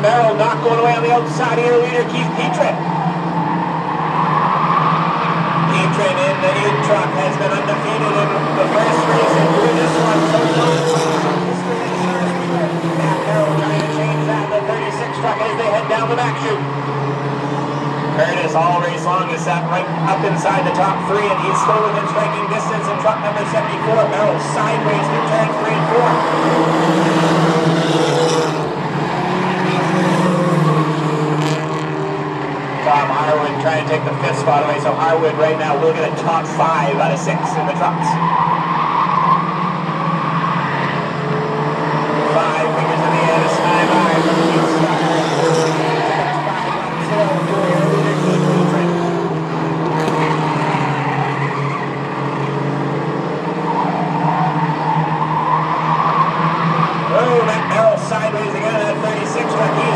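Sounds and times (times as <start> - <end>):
racing truck engines: 0.0 - 59.9
tyre squeal: 49.9 - 52.5.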